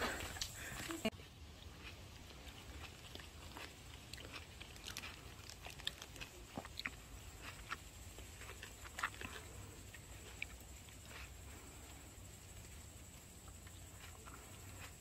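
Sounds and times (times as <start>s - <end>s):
tomatoes crunching: 0.0s - 12.2s.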